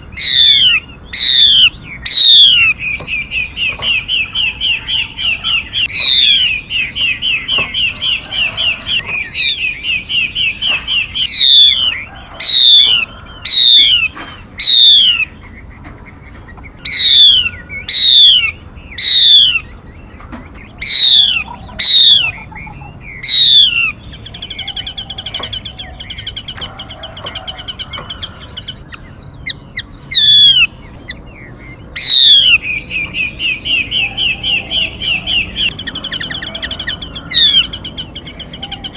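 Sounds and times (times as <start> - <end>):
bird calling falling notes: 0.0 - 38.9
bird chattering trill: 0.0 - 38.9.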